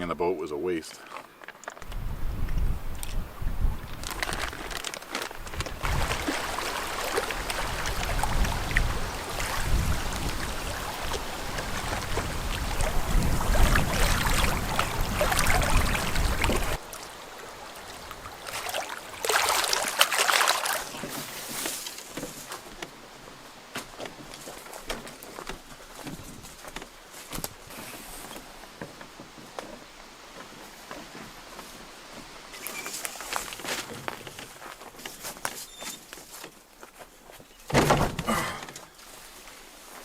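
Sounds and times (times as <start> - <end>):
rustling hiss: 0.0 - 38.1, 38.7 - 40.0
wind buffeting microphone: 1.8 - 16.8
water sloshing against canoe hull: 4.0 - 36.5.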